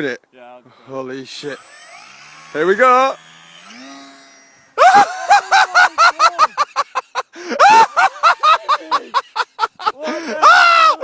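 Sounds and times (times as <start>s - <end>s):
people laughing hard: 4.8s - 11.0s.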